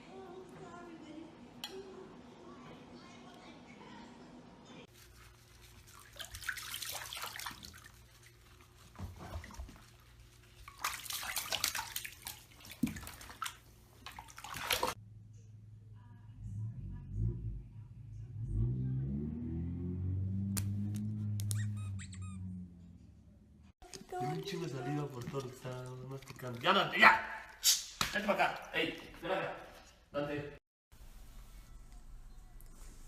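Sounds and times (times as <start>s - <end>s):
faint low hum: 0.0s - 26.6s
water splashing and sloshing: 4.9s - 15.0s, 23.8s - 30.0s
high-pitched squeaks: 21.4s - 22.6s.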